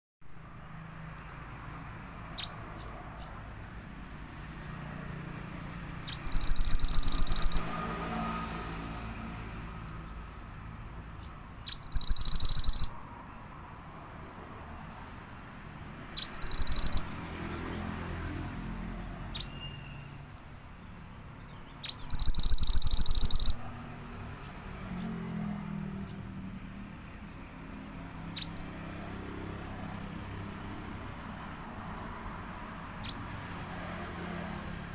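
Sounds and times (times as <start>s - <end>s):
bird single chirps: 2.3s - 3.4s, 6.0s - 8.5s, 10.8s - 13.2s, 15.6s - 17.8s, 18.9s - 20.4s, 21.3s - 23.8s, 28.3s - 28.8s, 33.0s - 33.3s
songbird high trills: 2.3s - 3.4s, 5.9s - 8.6s, 10.8s - 13.1s, 15.6s - 17.8s, 19.2s - 20.4s, 21.4s - 23.8s, 28.2s - 28.8s, 32.9s - 33.3s.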